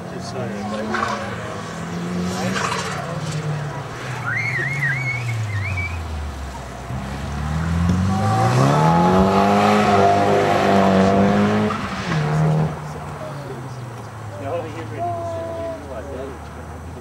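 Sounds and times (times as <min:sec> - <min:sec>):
car engine revving: 0:00.0 - 0:13.8
tyre squeal: 0:04.1 - 0:06.2.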